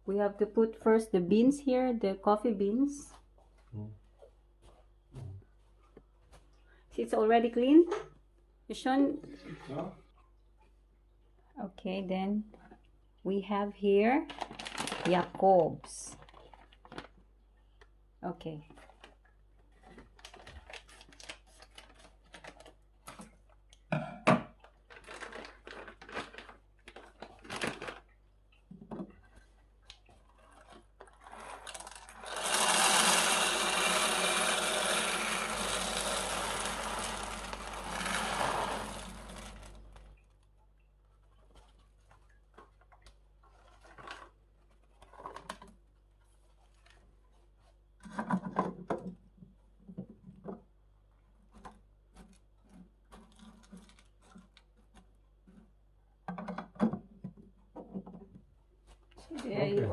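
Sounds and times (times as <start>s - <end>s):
coffee machine running: 31.6s - 40.0s.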